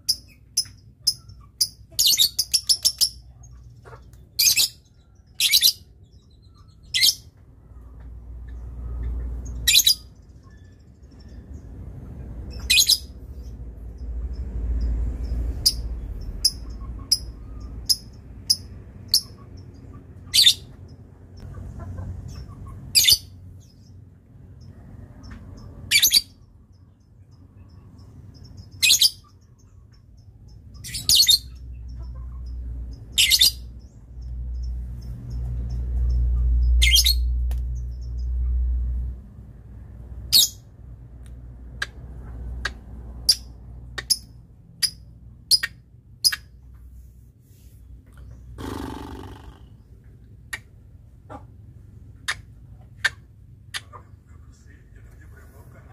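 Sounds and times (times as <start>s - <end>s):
bird high-pitched calls: 8.4s - 11.6s, 12.5s - 13.6s, 15.6s - 20.8s, 22.3s - 23.8s, 28.3s - 34.3s, 35.7s - 38.3s.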